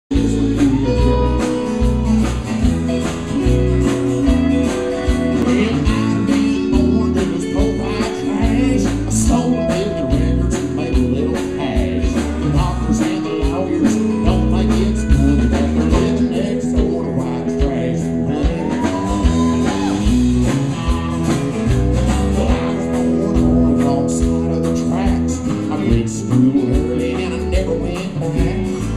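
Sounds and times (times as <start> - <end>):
bass: 0.0 - 28.9
drums with a steady beat: 0.1 - 28.9
electric guitars: 0.1 - 28.9
lead singer singing: 0.1 - 28.9.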